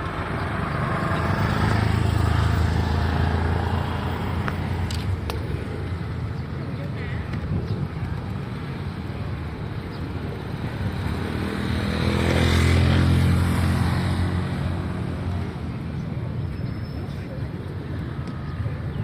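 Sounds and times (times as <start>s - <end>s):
vehicle passing by: 0.0s - 6.3s, 10.1s - 16.0s
street noise: 0.0s - 19.0s.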